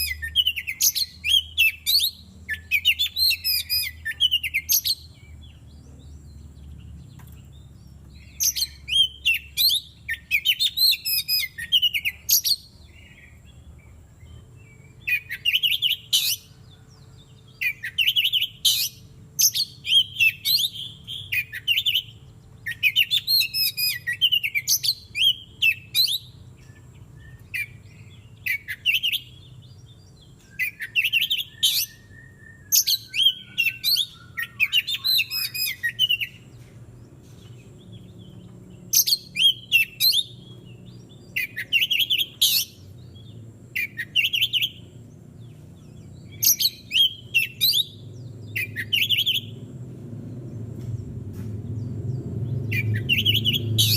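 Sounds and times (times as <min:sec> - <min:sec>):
bird singing whistled phrases: 0:00.0 - 0:05.3, 0:08.2 - 0:12.7, 0:14.7 - 0:16.6, 0:17.6 - 0:29.6, 0:30.4 - 0:36.4, 0:38.9 - 0:40.5, 0:41.2 - 0:42.8, 0:43.8 - 0:44.8, 0:46.3 - 0:49.6, 0:52.6 - 0:53.9.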